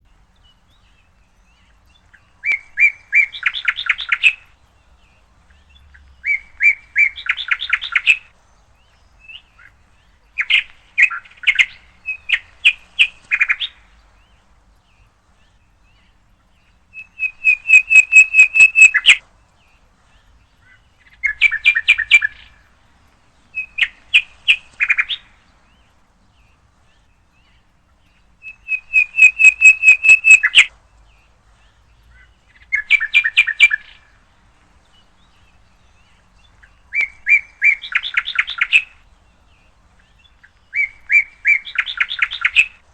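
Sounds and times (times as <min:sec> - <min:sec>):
songbird chirping: 0:00.0 - 0:42.9.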